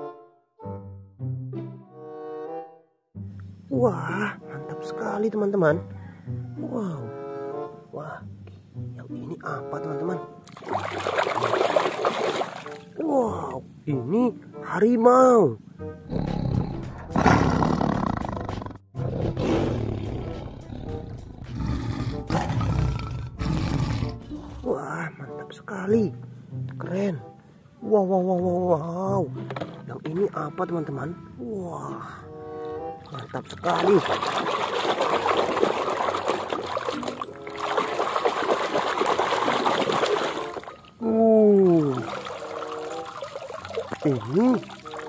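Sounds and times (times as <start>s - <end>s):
water splashing in a tub: 10.5s - 13.0s, 33.0s - 45.0s
tiger roaring: 16.1s - 24.7s.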